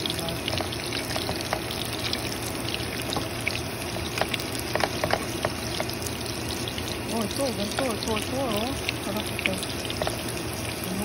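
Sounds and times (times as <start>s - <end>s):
meat sizzling in a frying pan: 0.0s - 11.0s
fat spattering pops and crackles: 0.5s - 6.8s.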